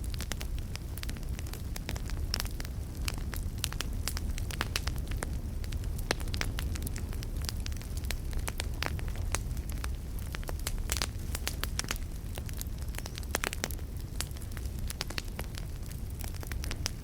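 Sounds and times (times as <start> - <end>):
burning wood crackling: 0.0 - 17.0
campfire flames rumbling: 0.0 - 17.0.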